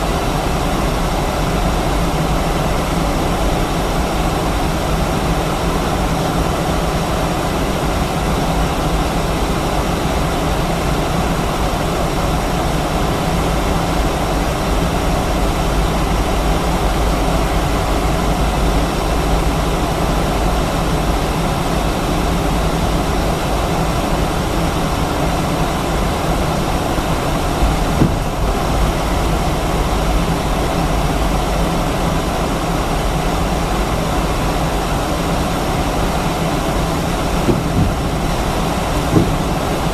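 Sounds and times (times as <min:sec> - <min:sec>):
jet engine roar in cabin: 0:00.0 - 0:39.9
brief knock: 0:28.0 - 0:28.5, 0:37.4 - 0:38.3, 0:39.1 - 0:39.7.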